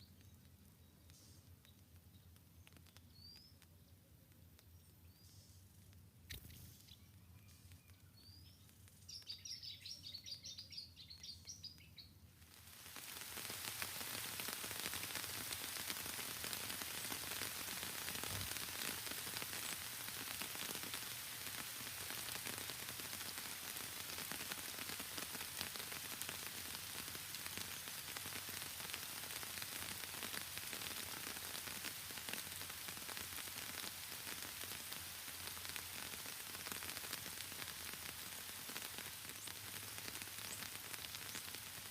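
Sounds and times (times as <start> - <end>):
songbird chirping: 6.3 - 12.3
heavy rain pouring: 12.5 - 41.9.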